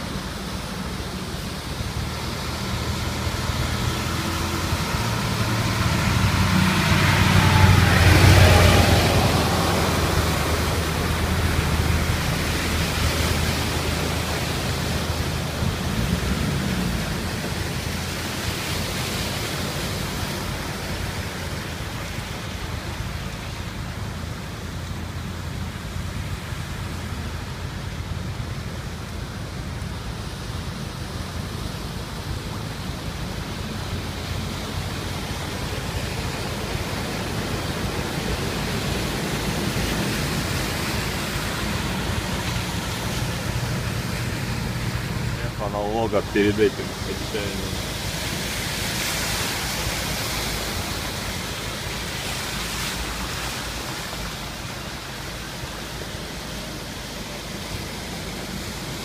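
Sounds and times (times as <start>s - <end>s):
low engine hum: 0.0s - 59.0s
rain and running water: 0.0s - 59.0s.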